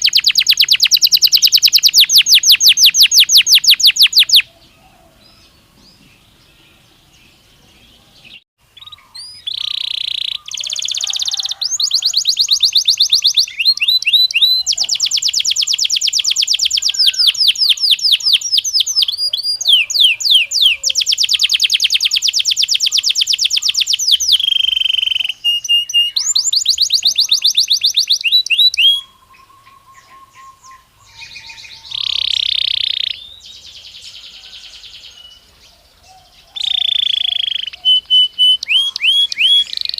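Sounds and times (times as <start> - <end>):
buzzy bird phrase: 0.0 - 4.5, 7.4 - 34.7, 36.6 - 39.9
canary trilling: 0.0 - 4.5, 8.3 - 33.3, 36.6 - 39.9.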